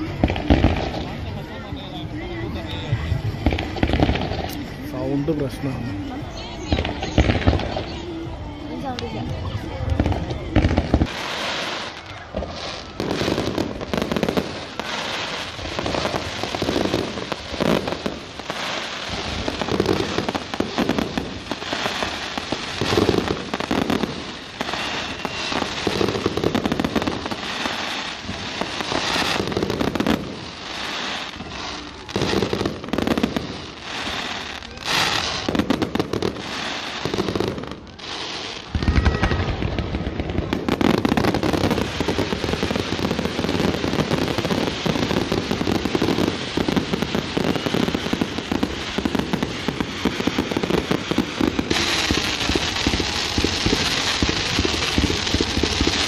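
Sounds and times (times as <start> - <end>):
fireworks crackling and banging: 0.0 - 56.0.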